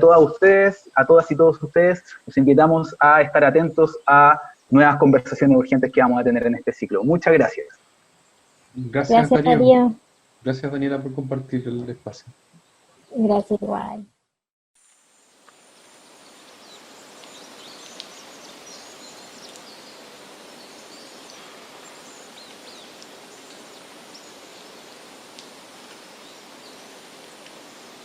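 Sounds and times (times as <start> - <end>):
faint high chirps: 0.0 - 7.7
steady hiss-like background: 0.0 - 14.0, 14.8 - 28.0.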